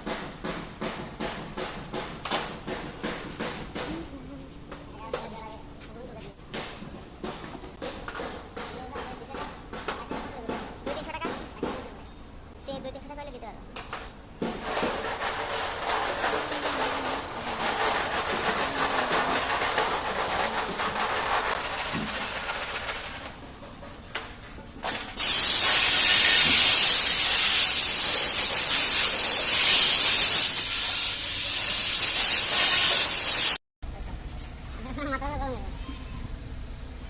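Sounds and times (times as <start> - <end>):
loud steady hiss: 25.2 - 33.6.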